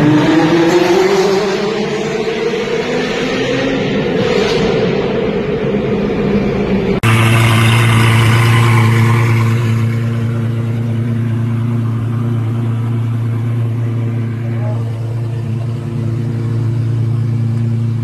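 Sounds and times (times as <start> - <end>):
car engine at steady pitch: 0.0 - 18.0
sports car engine running rough: 3.9 - 18.0.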